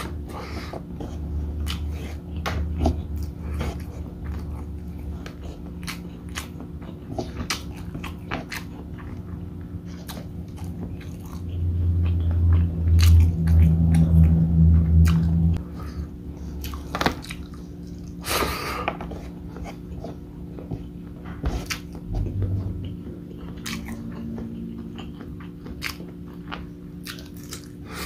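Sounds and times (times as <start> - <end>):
low hum: 0.0 - 18.3, 19.0 - 28.0
wet chewing: 0.0 - 28.0.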